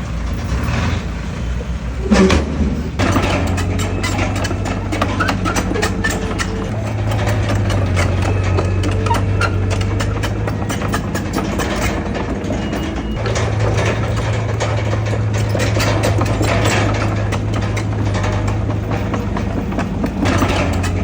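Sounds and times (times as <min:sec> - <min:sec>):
heavy diesel engine working: 0:00.0 - 0:21.0
metallic clanks and rattles: 0:02.0 - 0:21.0.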